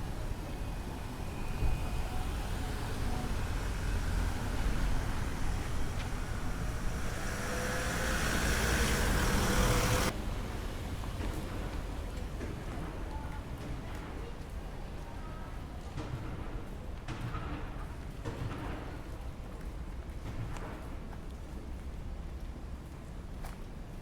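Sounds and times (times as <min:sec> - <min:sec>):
vehicle driving past: 0:00.0 - 0:10.9.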